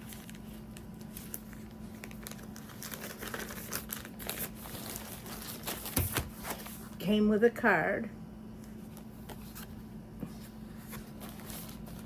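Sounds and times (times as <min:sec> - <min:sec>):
packaging crinkling and rustling: 0:00.0 - 0:07.0, 0:10.8 - 0:12.0.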